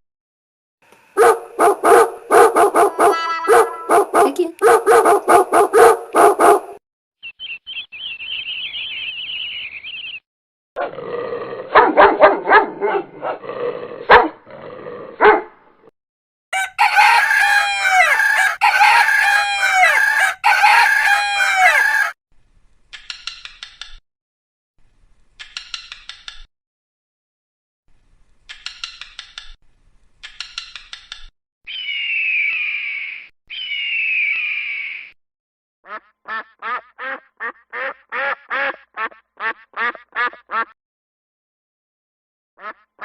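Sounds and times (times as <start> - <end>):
animal calls: 1.2 - 6.7
dog barking: 1.2 - 6.8, 11.7 - 13.4, 14.1 - 14.4, 15.2 - 15.6
rooster crowing: 16.5 - 22.2.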